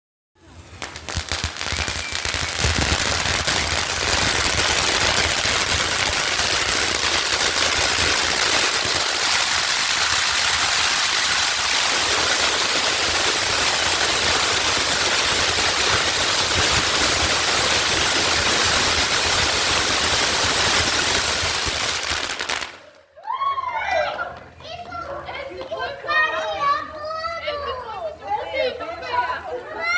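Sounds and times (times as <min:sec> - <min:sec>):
bonfire crackling and popping: 0:00.6 - 0:23.0.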